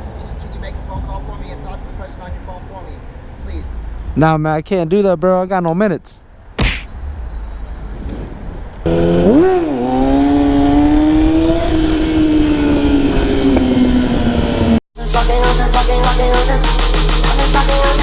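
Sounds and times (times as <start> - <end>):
motorcycle engine revving: 8.8 - 14.8
music: 15.0 - 18.0.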